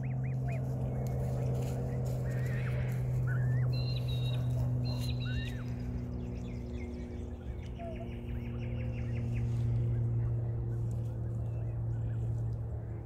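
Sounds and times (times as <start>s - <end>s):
birds chirping and whistling: 0.0s - 10.2s
steady low hum: 0.0s - 13.0s.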